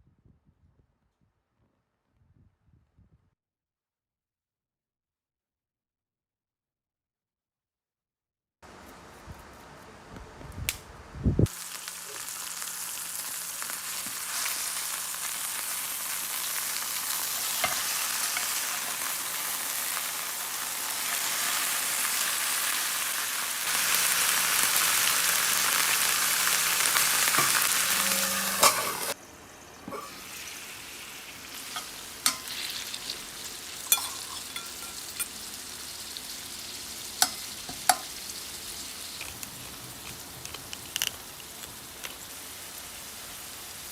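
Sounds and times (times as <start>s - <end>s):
food sizzling in oil: 11.5s - 29.2s, 29.8s - 43.9s.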